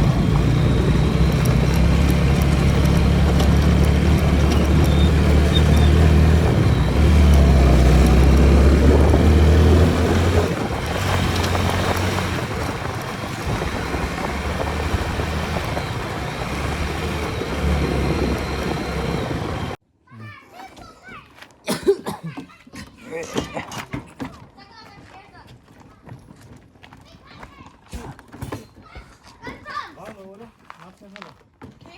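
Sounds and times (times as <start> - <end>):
motorcycle engine running: 0.0 - 19.8.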